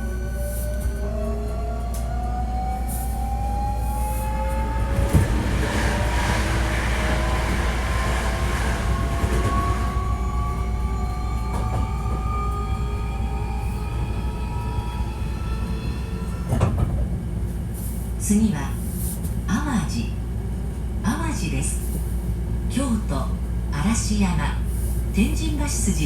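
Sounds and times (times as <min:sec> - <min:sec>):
low train rumble: 0:00.0 - 0:26.0
train motors whining: 0:00.8 - 0:17.2.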